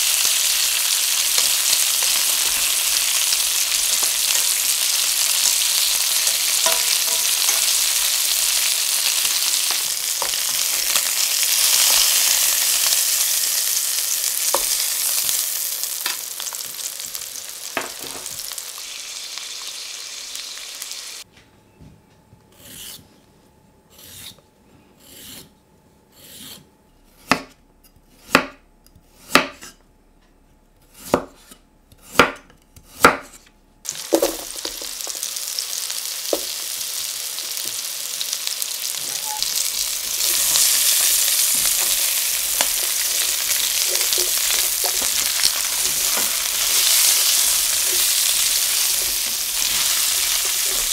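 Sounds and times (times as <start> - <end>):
food sizzling in a frying pan: 0.0 - 21.3, 33.9 - 50.9.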